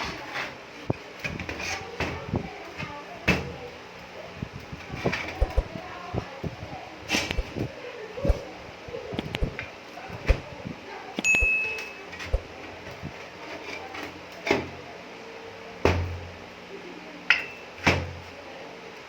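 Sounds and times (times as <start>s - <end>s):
heavy thuds: 5.3s - 5.8s
short metallic ring: 11.2s - 12.0s.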